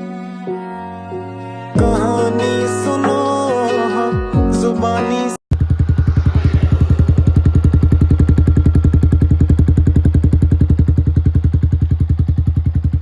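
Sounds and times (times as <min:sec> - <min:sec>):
motorcycle engine idling: 0:05.5 - 0:13.0.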